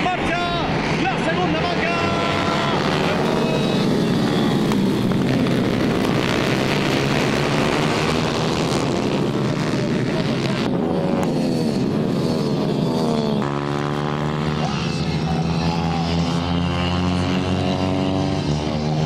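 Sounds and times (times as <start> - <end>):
racing motorcycles revving: 0.0 - 19.0.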